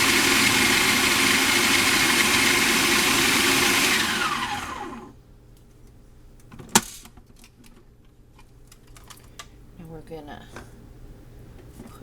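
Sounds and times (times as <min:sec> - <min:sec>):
food processor whirring: 0:00.0 - 0:05.1.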